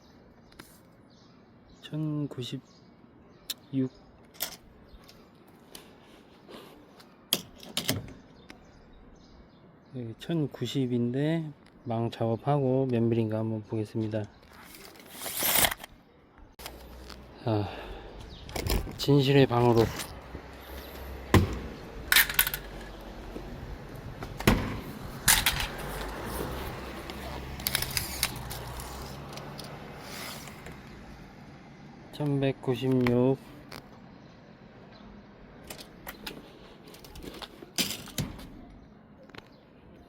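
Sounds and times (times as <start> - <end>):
sharp knocks on metal frame: 21.3 - 21.7.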